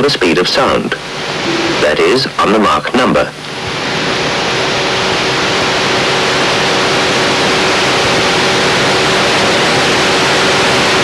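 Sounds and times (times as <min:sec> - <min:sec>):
faint steady hum: 0:00.3 - 0:04.3.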